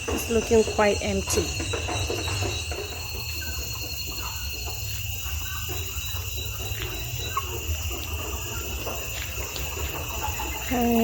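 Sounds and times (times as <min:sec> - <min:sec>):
chickens clucking: 0:00.0 - 0:11.0
high insect trill: 0:00.0 - 0:11.0.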